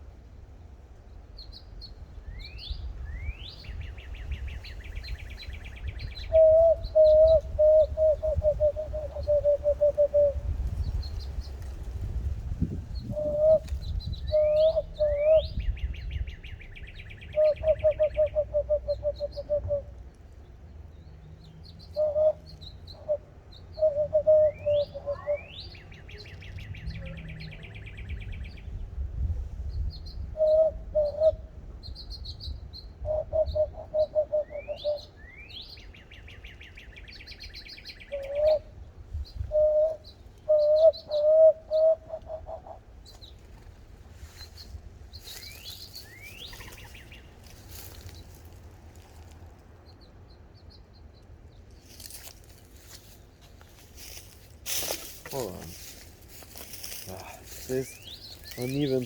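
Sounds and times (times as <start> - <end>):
bird song with buzzy trill: 12.6 - 19.7, 21.4 - 28.8, 29.7 - 43.4, 44.3 - 48.5, 54.0 - 59.0
rapid bird call notes: 54.7 - 59.0.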